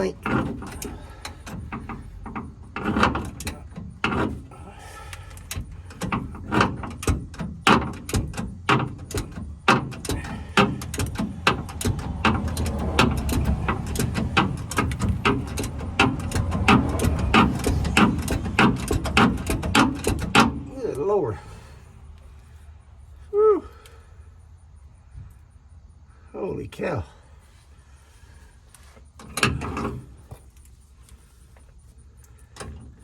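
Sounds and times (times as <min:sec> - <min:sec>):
wrench clicking on rusted nut: 0:00.0 - 0:20.7.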